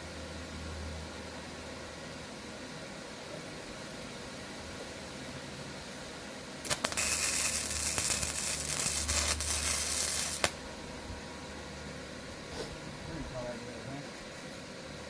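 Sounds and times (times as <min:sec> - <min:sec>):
low welding hum: 0:00.0 - 0:15.0
welding arc crackling and hissing: 0:06.6 - 0:10.6.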